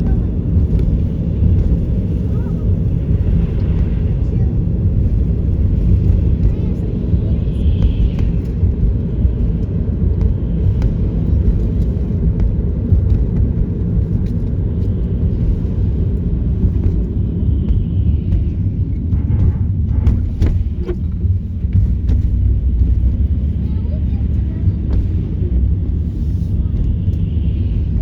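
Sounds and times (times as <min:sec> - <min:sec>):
car driving heard from inside: 0:00.0 - 0:28.0.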